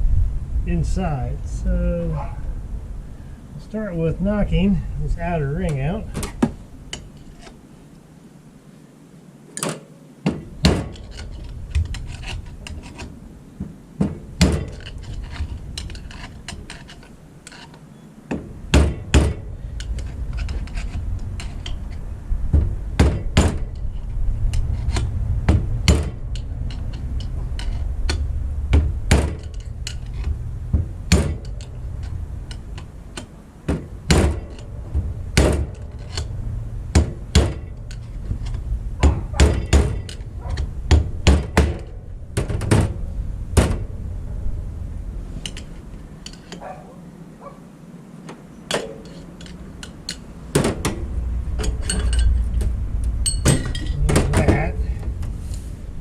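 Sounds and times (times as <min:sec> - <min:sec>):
low rumble: 0:00.0 - 0:06.9, 0:40.0 - 0:46.1.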